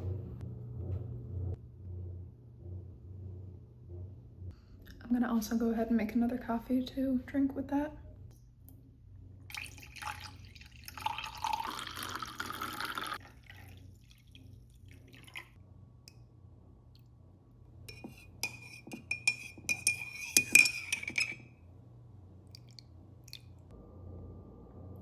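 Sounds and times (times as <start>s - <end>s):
liquid pouring into mug: 9.5s - 15.6s
spoon clinking in ceramic mug: 17.9s - 21.5s.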